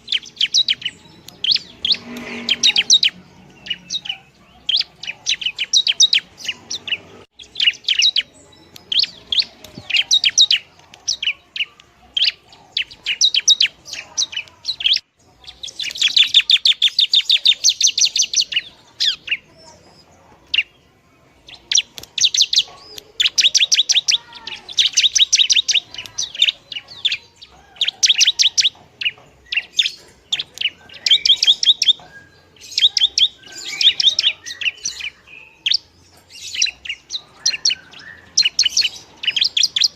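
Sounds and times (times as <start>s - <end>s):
bird singing sharp chirps: 0.0s - 20.8s, 21.4s - 39.9s.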